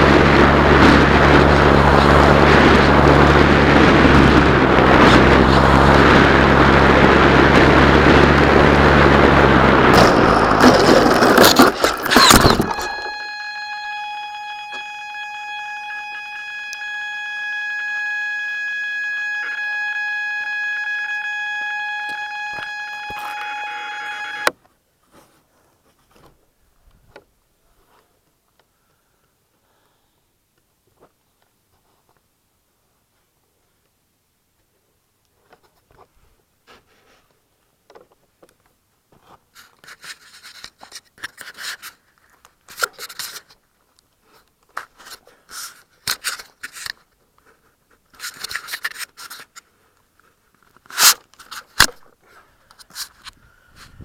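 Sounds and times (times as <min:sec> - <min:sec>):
wind on microphone: 0:00.0 - 0:12.8, 0:53.3 - 0:54.0
high-pitched electronic tone: 0:00.0 - 0:24.5
model aircraft motor running: 0:00.0 - 0:24.5.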